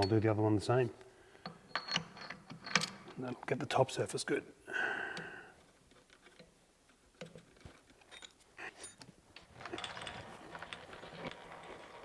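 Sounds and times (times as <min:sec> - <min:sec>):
metal tools clicking and knocking: 0:01.4 - 0:03.2.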